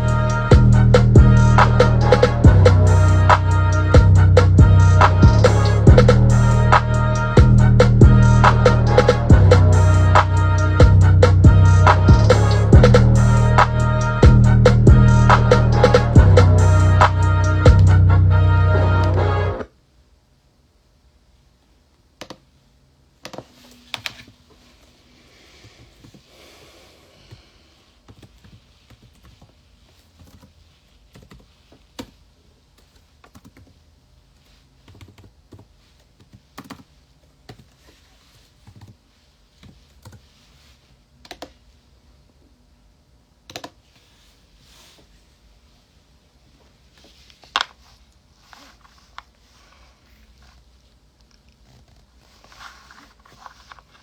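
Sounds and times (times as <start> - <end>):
keyboard and mouse clicks: 22.2 - 22.5, 23.2 - 24.3, 28.1 - 30.5, 34.8 - 37.8, 41.2 - 41.6, 43.5 - 43.8.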